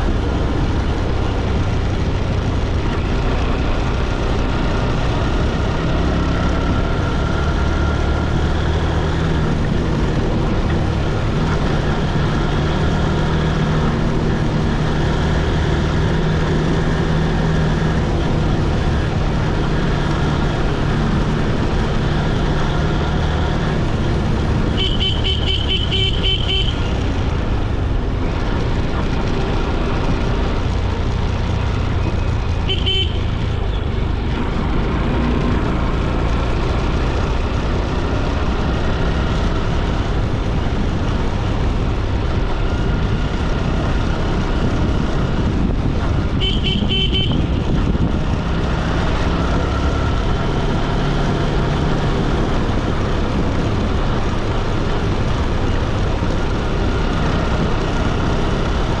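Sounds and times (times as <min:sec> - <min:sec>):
motorcycle engine and road noise: 0:00.0 - 0:59.0
vehicle horn pulsing: 0:24.7 - 0:27.0, 0:32.6 - 0:33.4, 0:46.4 - 0:47.6.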